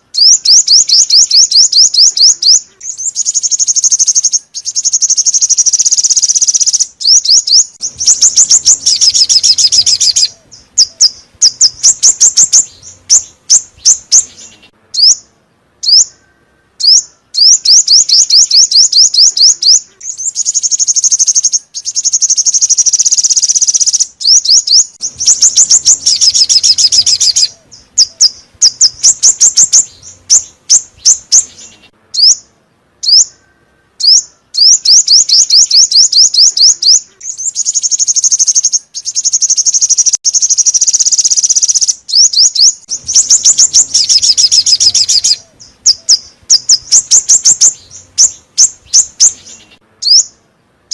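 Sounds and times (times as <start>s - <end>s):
songbird chirping song: 0.0s - 50.9s.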